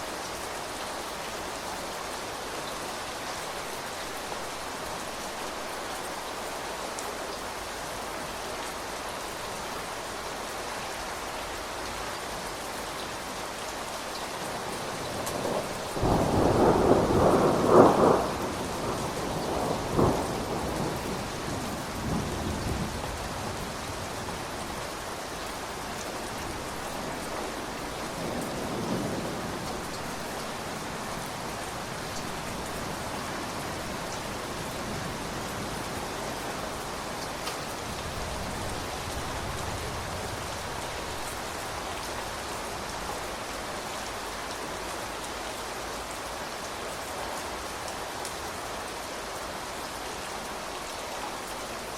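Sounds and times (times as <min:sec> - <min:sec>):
steady rain falling: 0:00.0 - 0:51.9
thunder rumbling: 0:15.0 - 0:24.4.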